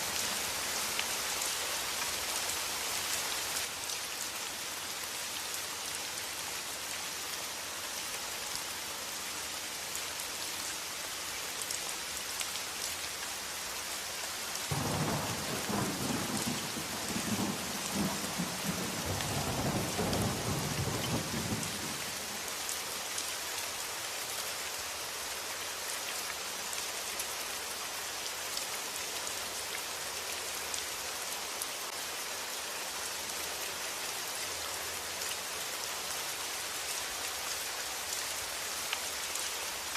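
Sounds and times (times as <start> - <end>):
steady rain: 0.0 - 39.9
thunder rumbling: 14.7 - 22.0.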